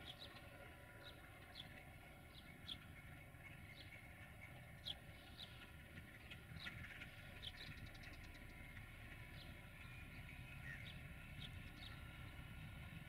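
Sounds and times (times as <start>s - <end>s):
faint bird chirps: 9.4s - 12.0s.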